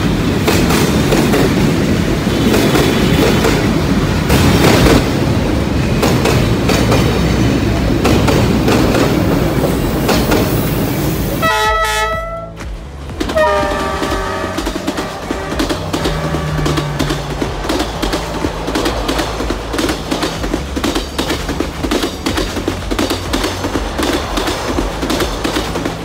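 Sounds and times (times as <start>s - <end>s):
train wheels rumbling and clattering: 0.0s - 26.0s
train horn: 11.4s - 12.7s, 13.3s - 18.2s.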